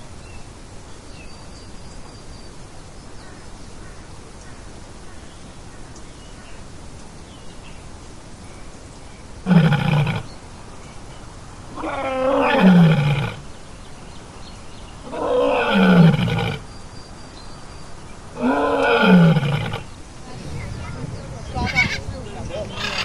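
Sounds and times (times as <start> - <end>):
big cat roaring: 18.4 - 23.0.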